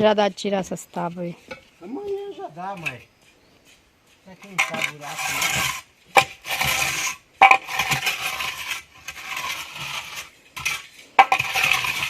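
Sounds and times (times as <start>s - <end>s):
trowel scraping wet mortar: 4.1s - 12.0s.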